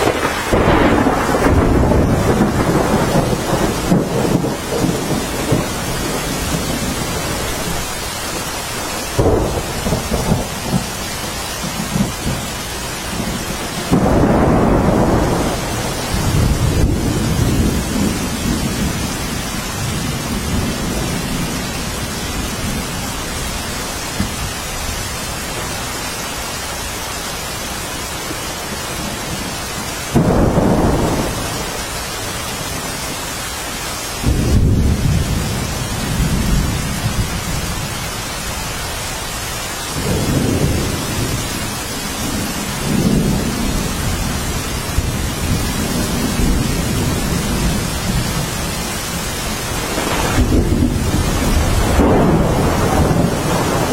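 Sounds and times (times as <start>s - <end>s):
low rolling thunder: 0.0s - 25.9s, 28.3s - 33.2s, 34.2s - 39.2s, 39.9s - 53.9s
steady rainfall: 0.0s - 53.9s.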